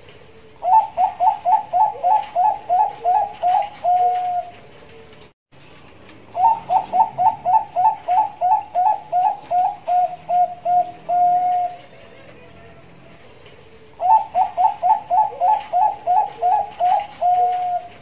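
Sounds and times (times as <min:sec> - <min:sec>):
dove cooing in staccato coos: 0:00.6 - 0:04.6, 0:06.4 - 0:12.3, 0:13.8 - 0:18.0.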